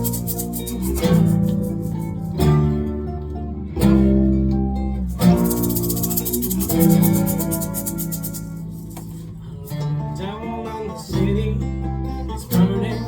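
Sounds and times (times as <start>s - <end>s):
shaker rhythm: 0.0s - 2.7s, 5.0s - 9.8s
acoustic guitar strumming: 0.0s - 13.0s.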